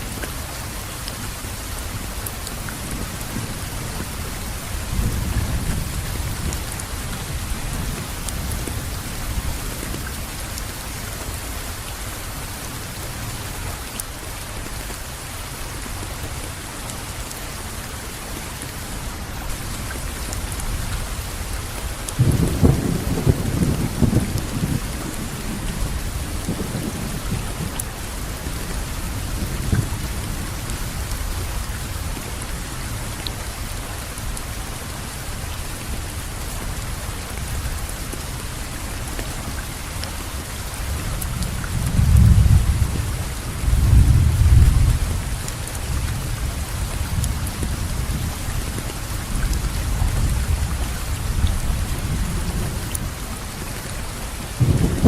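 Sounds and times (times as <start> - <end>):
steady rain falling: 0.0 - 55.0
low rolls of thunder: 22.2 - 27.8, 41.2 - 48.4, 54.6 - 55.0.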